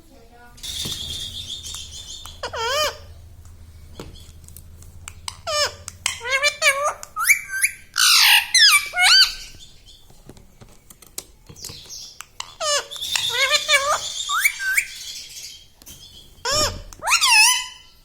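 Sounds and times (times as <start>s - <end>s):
parrot squawking: 0.6s - 3.3s, 3.9s - 9.7s, 12.4s - 18.0s.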